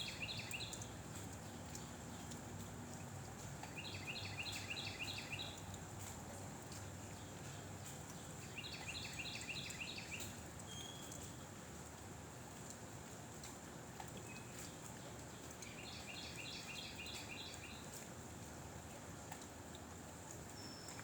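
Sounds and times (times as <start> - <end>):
songbird singing short notes: 8.6 - 11.3.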